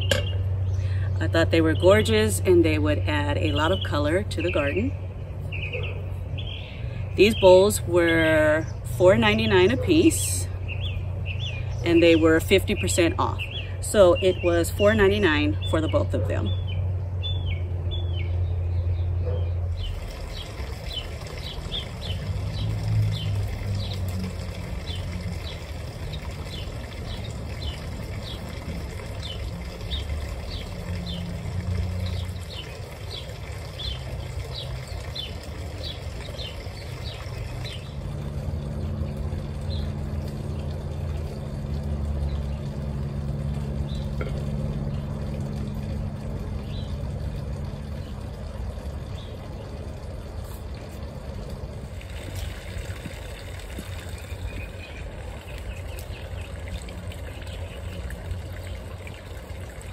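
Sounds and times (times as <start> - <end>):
low steady rumble: 0.0 - 59.9
bird chirping: 3.5 - 7.5, 15.5 - 24.1.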